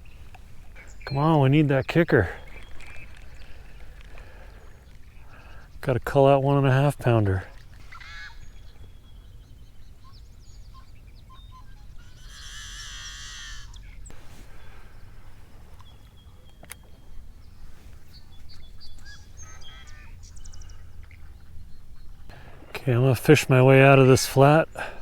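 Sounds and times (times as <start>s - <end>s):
bird chirps: 0.0s - 25.0s
low outdoor rumble: 0.0s - 25.0s
loud wavering bird call: 7.5s - 14.1s, 19.0s - 21.6s.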